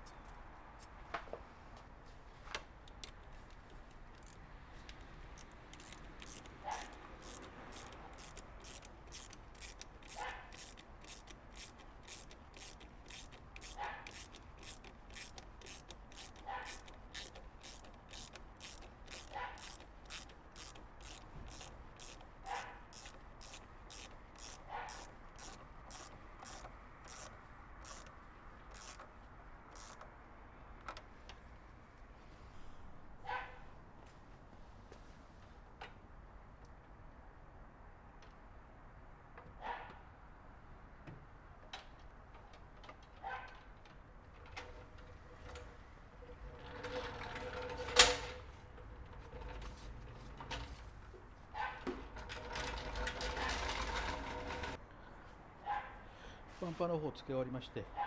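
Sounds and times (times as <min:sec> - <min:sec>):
hand ratchet clicking: 0:02.9 - 0:29.1, 0:29.7 - 0:30.2.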